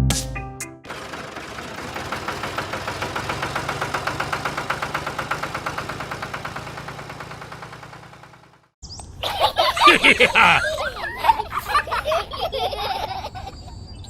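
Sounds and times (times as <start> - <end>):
small engine chugging: 0.9 - 8.8.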